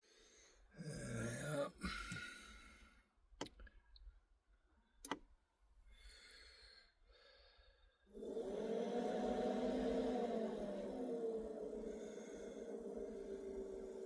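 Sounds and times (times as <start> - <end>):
diesel heater humming: 8.2 - 14.0.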